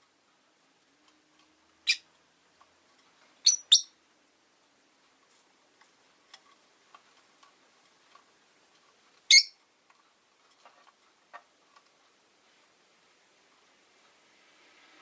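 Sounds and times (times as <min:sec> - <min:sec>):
lovebird chirp: 0:01.8 - 0:02.1, 0:03.4 - 0:04.0, 0:09.3 - 0:09.6
faint clicks and ticks: 0:05.0 - 0:12.3.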